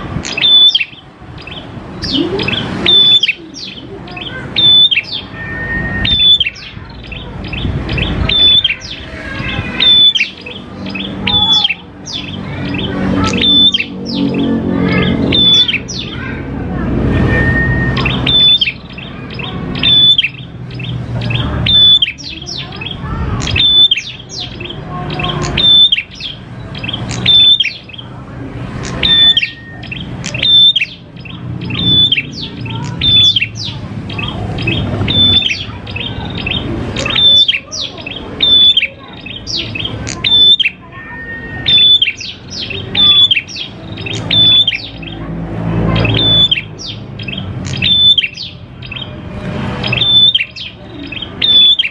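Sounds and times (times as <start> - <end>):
songbird chirping: 0.0 - 51.9.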